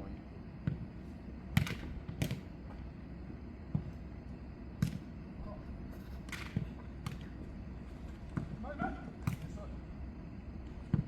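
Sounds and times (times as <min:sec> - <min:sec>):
ball kicked and bouncing: 0:00.6 - 0:00.9, 0:03.7 - 0:04.0, 0:08.3 - 0:09.5, 0:10.8 - 0:11.0.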